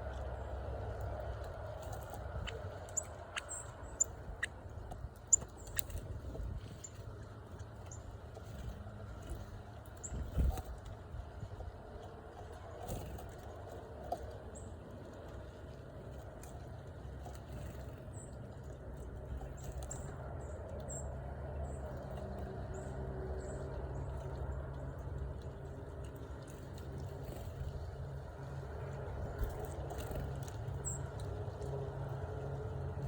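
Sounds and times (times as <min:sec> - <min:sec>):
small birds chipping: 0:00.0 - 0:33.0
steady low rumble: 0:00.0 - 0:33.0.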